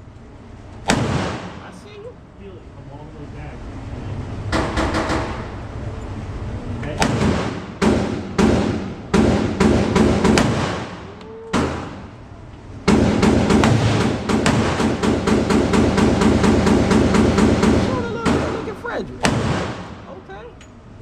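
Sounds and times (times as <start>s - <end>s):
gunshots indoors: 0.7s - 1.8s, 4.5s - 5.8s, 7.0s - 20.2s.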